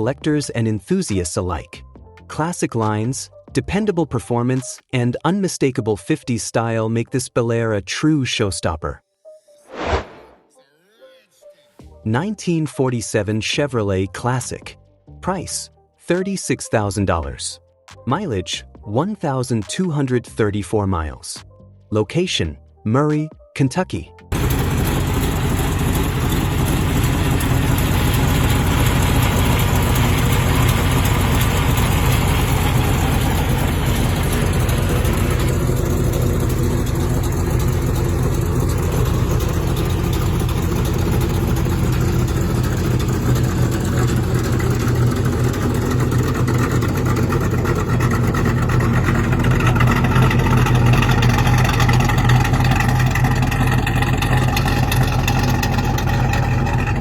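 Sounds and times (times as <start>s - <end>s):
car engine low rumble: 24.3s - 57.0s.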